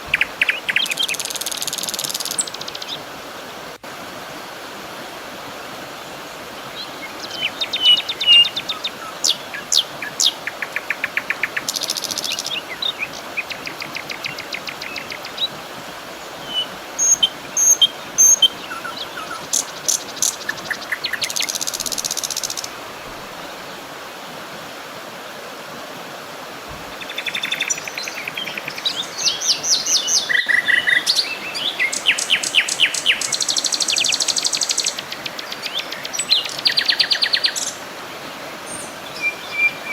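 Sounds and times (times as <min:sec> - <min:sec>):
steady hiss: 0:00.0 - 0:39.9
wild birds calling and singing: 0:06.8 - 0:22.7, 0:26.9 - 0:37.8, 0:38.7 - 0:39.9.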